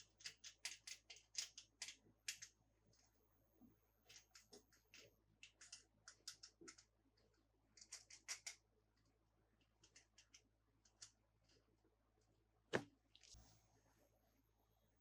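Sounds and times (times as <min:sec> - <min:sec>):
toys and packaging clicking and crinkling: 0:00.0 - 0:03.1, 0:04.1 - 0:08.6.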